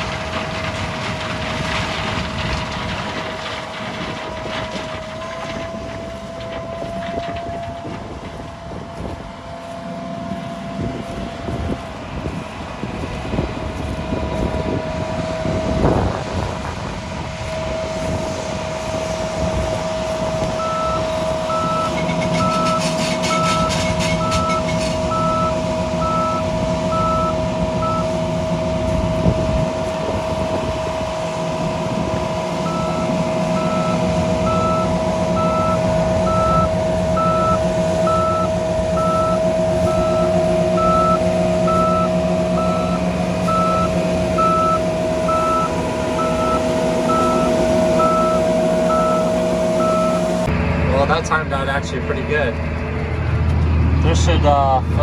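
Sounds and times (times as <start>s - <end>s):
diesel engine running: 0.0s - 55.0s
steady high whine: 6.4s - 54.6s
reversing alarm beeping: 17.4s - 50.5s.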